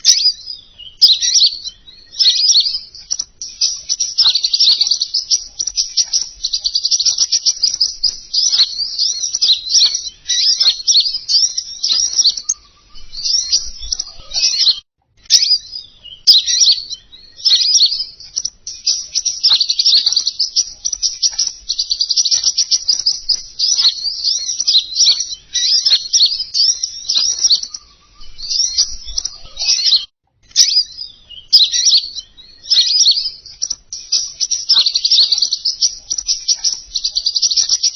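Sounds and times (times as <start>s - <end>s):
songbird twittering chirps: 0.0s - 37.9s.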